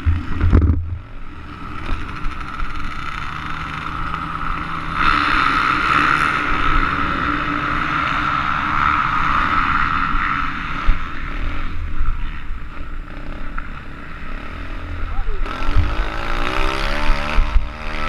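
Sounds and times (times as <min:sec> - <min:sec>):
pit bike engine revving high: 0:01.9 - 0:18.0
wind rumble on microphone: 0:14.9 - 0:18.0.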